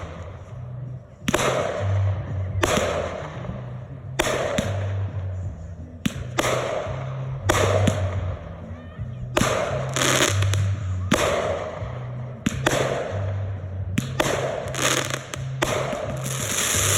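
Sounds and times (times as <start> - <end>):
bass notes of music: 0.0 - 16.9
fireworks bangs and crackle: 9.4 - 16.9.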